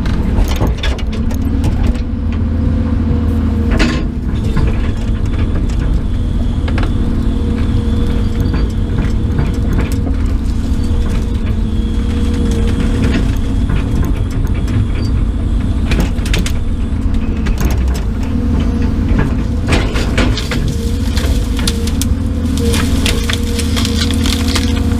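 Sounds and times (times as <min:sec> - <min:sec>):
low motor hum: 0:00.0 - 0:24.9
bonfire crackling and popping: 0:19.7 - 0:24.9.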